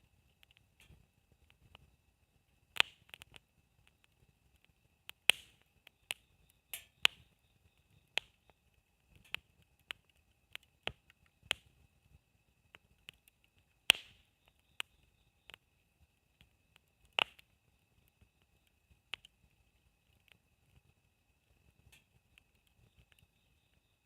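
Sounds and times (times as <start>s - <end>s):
campfire wood crackling: 0.0s - 24.0s
hiss of burning wood: 0.2s - 23.8s
faint steady high tone: 21.8s - 24.0s.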